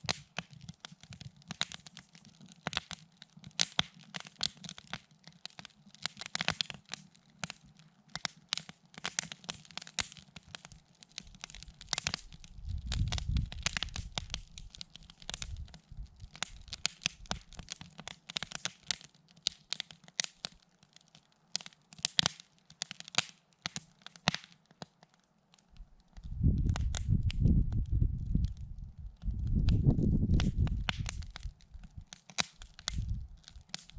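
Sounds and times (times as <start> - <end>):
campfire crackling: 0.0 - 33.9
low rumble: 26.2 - 31.4, 33.0 - 33.4.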